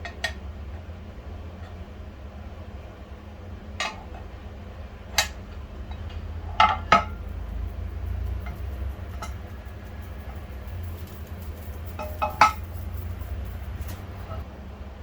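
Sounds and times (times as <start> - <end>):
steady low hum: 0.0 - 15.0
small metal pieces clinking: 7.2 - 14.4.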